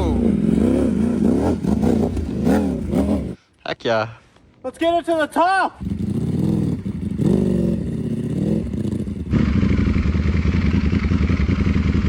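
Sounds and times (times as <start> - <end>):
motorcycle engine revving: 0.0 - 3.4, 5.8 - 12.0.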